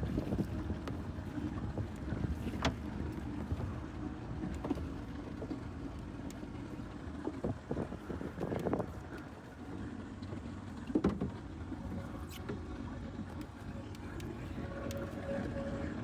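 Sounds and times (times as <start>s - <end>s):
wind on microphone: 0.0s - 3.9s, 7.3s - 9.4s
motorboat engine running: 0.0s - 16.0s.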